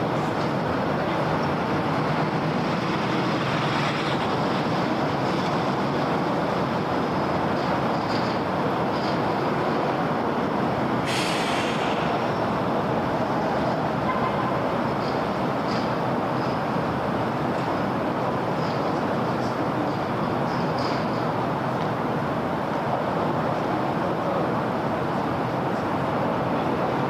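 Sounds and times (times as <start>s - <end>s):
city road traffic rumble: 0.0s - 27.0s
sudden hiss: 11.1s - 12.2s.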